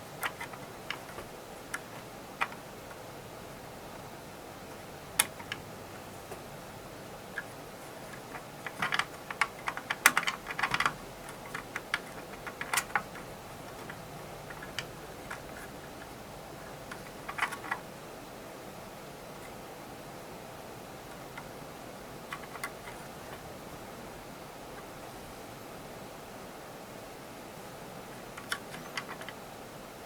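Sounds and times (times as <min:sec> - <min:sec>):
hand tools clicking and tapping: 0:00.0 - 0:03.0, 0:05.2 - 0:05.7, 0:07.3 - 0:17.8, 0:28.4 - 0:29.4.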